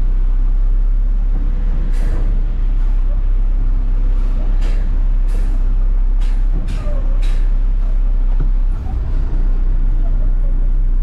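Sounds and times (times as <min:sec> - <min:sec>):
garbage truck engine running: 0:00.0 - 0:11.0.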